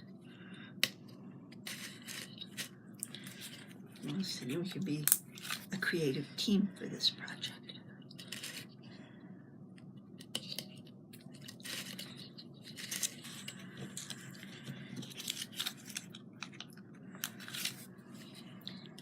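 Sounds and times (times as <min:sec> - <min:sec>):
craft materials scratching and rustling: 0:01.5 - 0:05.9, 0:08.1 - 0:08.9, 0:10.2 - 0:19.0.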